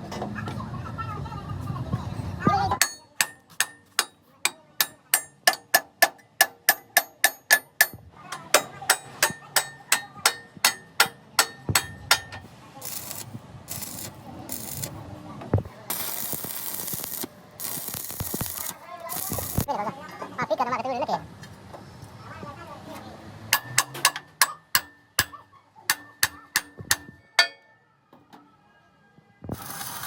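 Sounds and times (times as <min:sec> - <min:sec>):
hammer striking steel: 0:02.8 - 0:14.9, 0:23.5 - 0:27.8.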